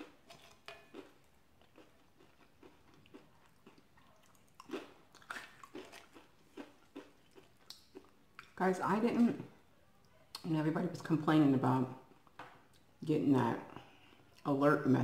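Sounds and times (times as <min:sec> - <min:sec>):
chewing and crunching corn chips: 0:00.0 - 0:08.6.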